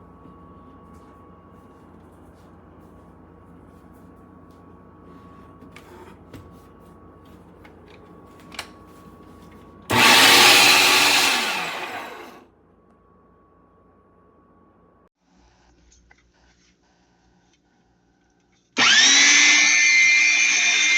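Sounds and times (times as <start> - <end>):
meat grinder motor whirring: 9.9 - 12.4, 18.8 - 20.9.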